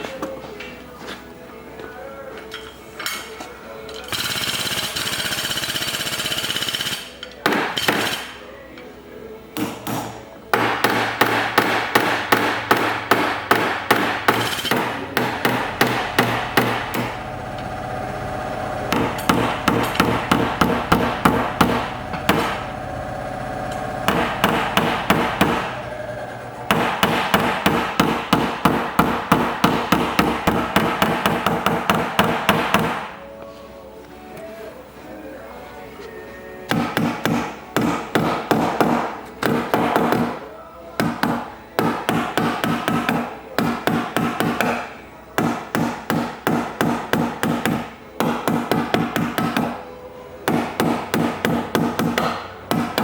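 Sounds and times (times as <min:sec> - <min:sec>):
hammer tapping sheet metal: 0:04.1 - 0:08.4, 0:09.6 - 0:17.2, 0:18.9 - 0:22.6, 0:24.0 - 0:25.8, 0:26.7 - 0:33.2, 0:36.7 - 0:53.0.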